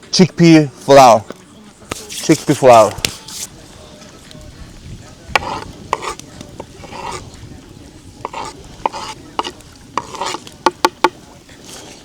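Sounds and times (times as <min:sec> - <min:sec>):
utensil scraping in bowl: 0:01.9 - 0:03.6, 0:05.4 - 0:07.4, 0:08.2 - 0:12.0.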